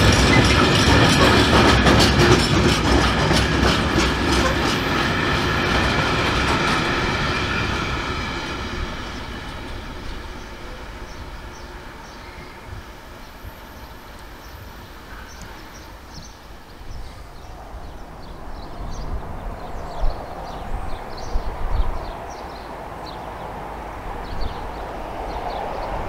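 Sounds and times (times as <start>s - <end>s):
freight train wheels clattering: 0.0s - 12.2s.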